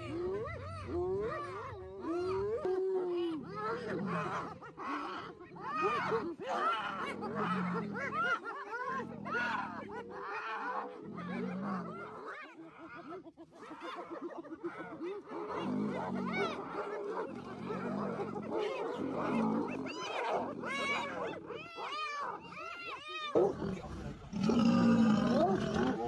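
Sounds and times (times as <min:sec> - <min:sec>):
animals calling: 0:00.0 - 0:26.0.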